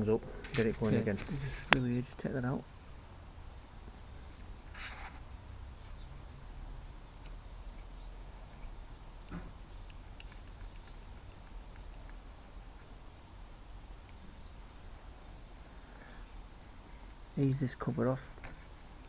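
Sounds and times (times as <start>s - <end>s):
faint bird chirps: 0.9s - 2.1s, 3.1s - 6.2s, 7.4s - 11.7s, 13.9s - 19.0s
small clicks and knock: 7.2s - 12.2s.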